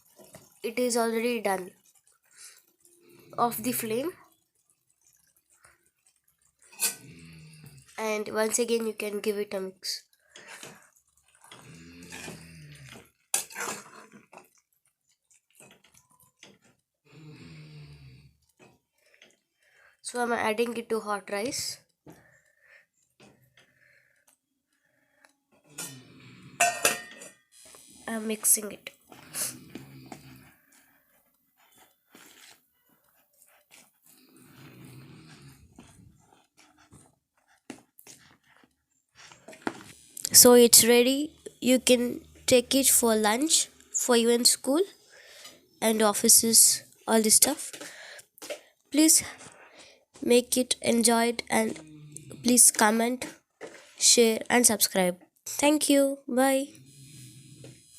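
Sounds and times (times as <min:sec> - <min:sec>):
metal spoon scraping a pan: 0:03.7 - 0:07.2, 0:10.3 - 0:16.8, 0:25.5 - 0:27.5
spoon scraping a bowl: 0:06.6 - 0:07.1, 0:10.4 - 0:14.6, 0:25.8 - 0:27.5, 0:29.1 - 0:40.4.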